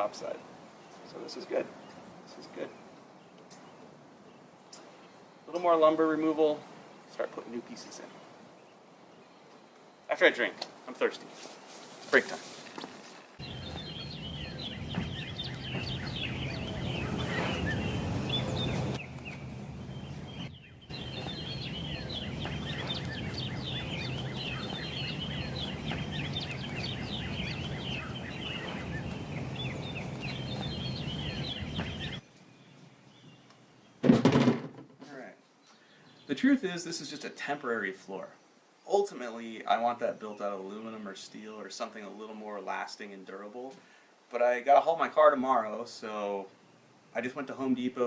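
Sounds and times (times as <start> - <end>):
small birds chirping: 0.0 - 34.0, 35.1 - 48.0
steady low hum: 13.4 - 32.2.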